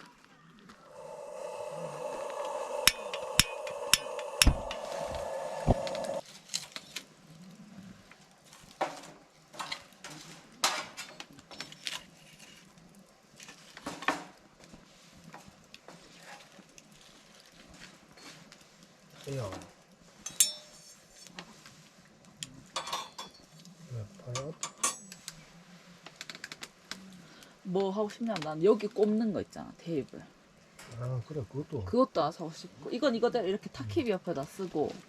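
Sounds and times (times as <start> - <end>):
steady rushing sound: 0.8 - 6.2.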